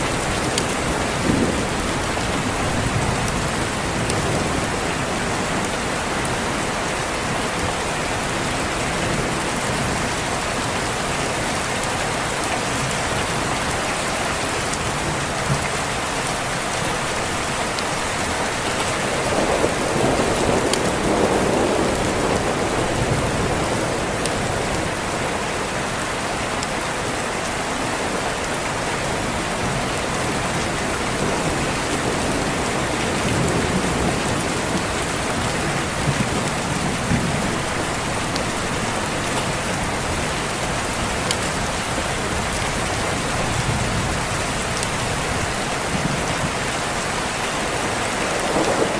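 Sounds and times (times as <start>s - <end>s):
thunder rumble: 0.0s - 6.8s, 17.0s - 25.4s, 29.5s - 46.6s, 48.2s - 48.9s
rain on a window: 0.0s - 48.9s.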